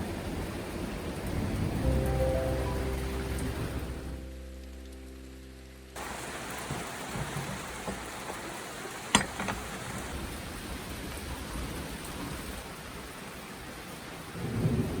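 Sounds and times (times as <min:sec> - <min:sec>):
heavy rain falling: 0:00.0 - 0:15.0
music track: 0:01.4 - 0:06.0.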